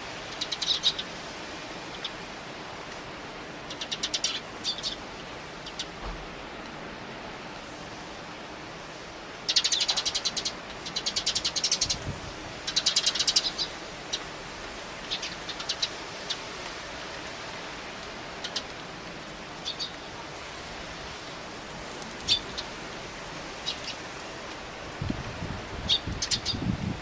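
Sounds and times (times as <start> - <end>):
strong wind hiss: 0.0 - 27.0
sparrows chattering: 0.3 - 1.1, 3.7 - 5.0, 9.5 - 12.0, 12.6 - 14.3, 15.0 - 16.5, 19.6 - 20.1, 22.2 - 22.8, 23.5 - 24.0, 25.8 - 26.8.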